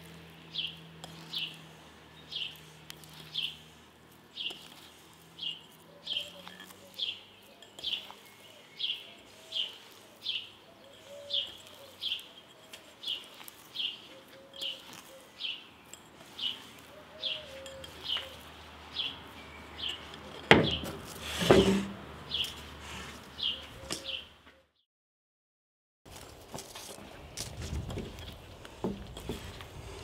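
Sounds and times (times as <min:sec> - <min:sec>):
small bird chirping: 0:02.2 - 0:03.7, 0:04.3 - 0:20.2.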